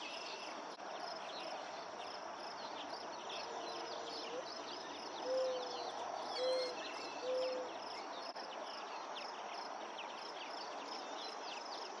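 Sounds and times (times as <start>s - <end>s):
low hooting bird: 5.2s - 5.8s.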